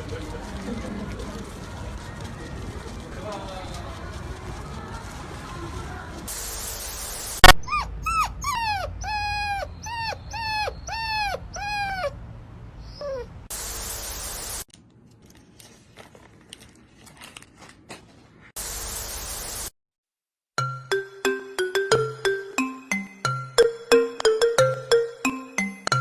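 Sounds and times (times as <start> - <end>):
dog whining: 7.4 - 12.2, 12.8 - 13.5.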